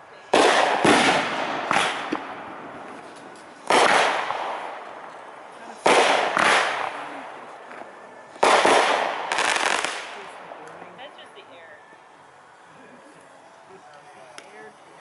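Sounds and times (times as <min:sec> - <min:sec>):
firework shells bursting: 0:00.3 - 0:07.0, 0:07.7 - 0:10.4.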